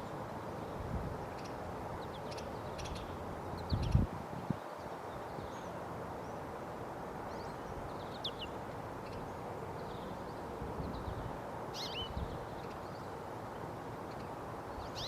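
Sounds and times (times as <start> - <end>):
wind noise: 0.8 - 1.4, 2.8 - 5.0, 10.5 - 12.6
goldfinch chirps and calls: 1.2 - 4.1, 7.3 - 13.2, 14.0 - 15.0.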